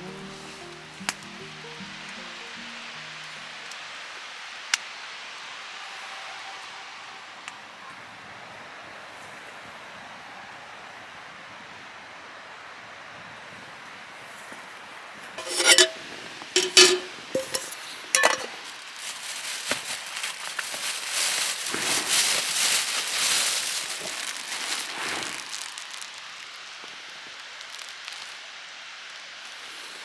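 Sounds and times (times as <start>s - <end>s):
tableware clinking: 15.4s - 18.6s.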